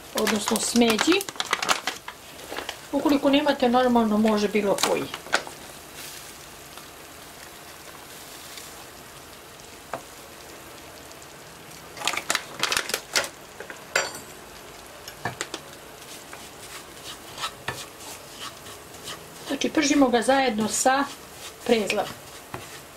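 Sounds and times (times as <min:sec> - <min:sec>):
breadcrumbs sizzling in a pan: 0:00.0 - 0:22.9
utensil scraping a pan: 0:16.0 - 0:22.9.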